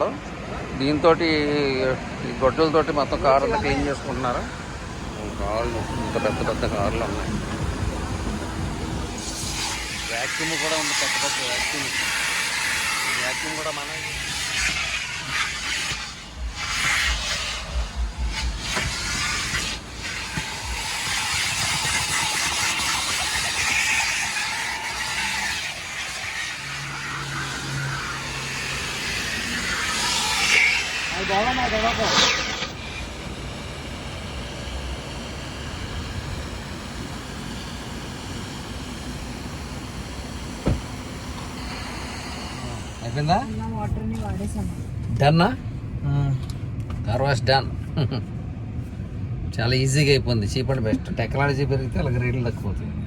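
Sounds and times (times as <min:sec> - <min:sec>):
car wash vacuum hissing: 0:00.0 - 0:45.6
low rumble: 0:00.3 - 0:15.3, 0:15.9 - 0:47.4.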